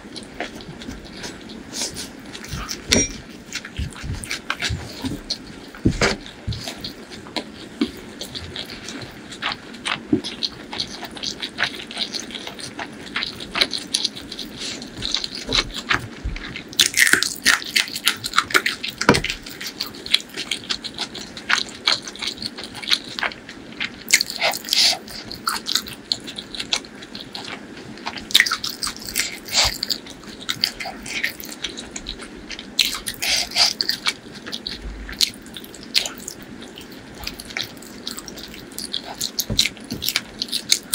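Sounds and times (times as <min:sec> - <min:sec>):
close chewing and mouth clicks: 0:00.0 - 0:40.9
biting into meat: 0:00.1 - 0:40.9.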